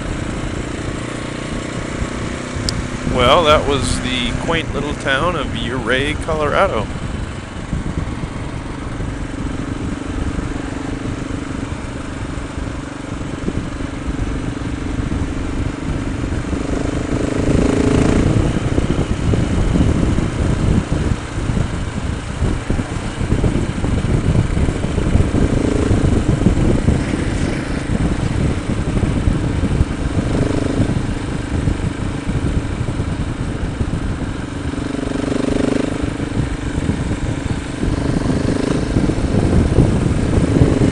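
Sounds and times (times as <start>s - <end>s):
motorcycle engine running: 0.0s - 40.9s
road rumble: 0.0s - 40.9s
wind noise: 0.0s - 40.9s.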